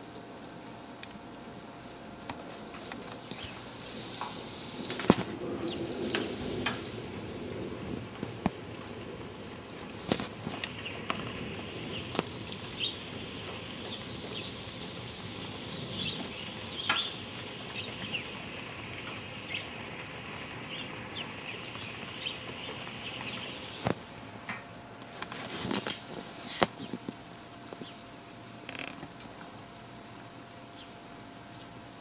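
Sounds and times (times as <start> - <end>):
steady background hiss: 0.0 - 32.0
small birds chirping: 1.2 - 8.7, 11.9 - 18.4, 20.6 - 24.1, 25.6 - 29.2, 29.9 - 31.9.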